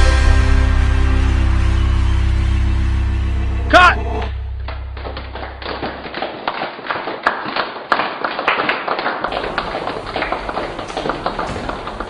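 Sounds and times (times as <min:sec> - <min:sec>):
low hum: 0:00.0 - 0:06.2
hand clapping: 0:04.7 - 0:12.0.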